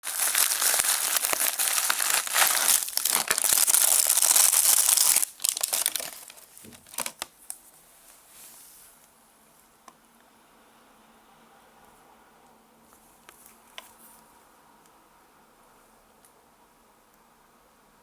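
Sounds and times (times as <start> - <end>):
plastic packaging crinkling and tearing: 0.0 - 7.6.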